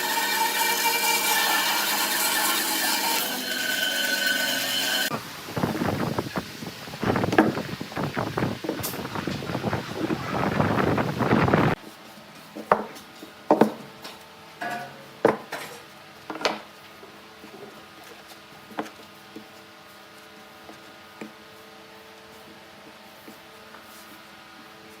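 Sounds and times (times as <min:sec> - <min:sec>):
wood lathe cutting: 0:00.0 - 0:05.1.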